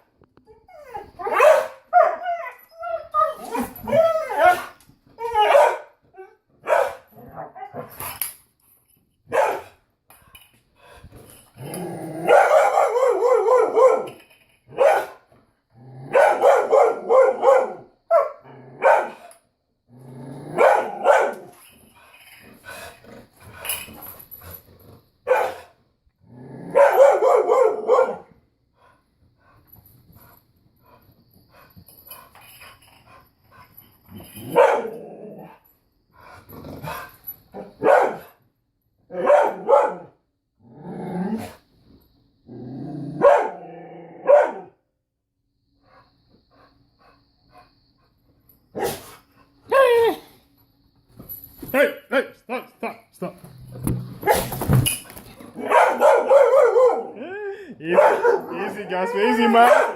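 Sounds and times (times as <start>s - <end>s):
dog barking: 1.3s - 2.2s, 5.4s - 6.0s, 6.6s - 7.1s, 9.3s - 9.8s, 12.3s - 15.2s, 16.1s - 19.3s, 20.6s - 21.5s, 25.3s - 25.7s, 26.7s - 28.3s, 34.5s - 35.0s, 37.8s - 38.3s, 39.1s - 40.2s, 43.2s - 43.6s, 44.2s - 44.8s, 55.6s - 57.2s, 57.9s - 59.9s.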